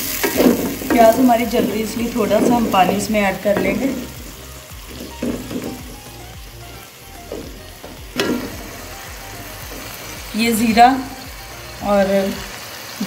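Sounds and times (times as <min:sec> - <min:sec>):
spatula stirring and scraping: 0:00.0 - 0:06.3
onions sizzling in hot oil: 0:00.0 - 0:13.0.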